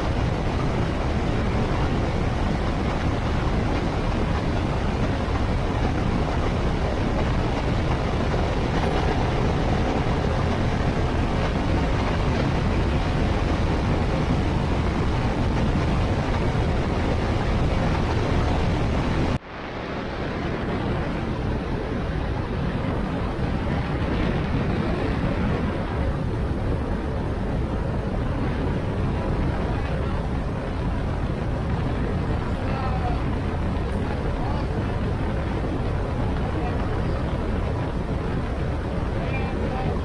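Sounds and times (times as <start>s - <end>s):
motorcycle road noise: 0.0s - 19.4s
wind rush: 0.0s - 40.0s.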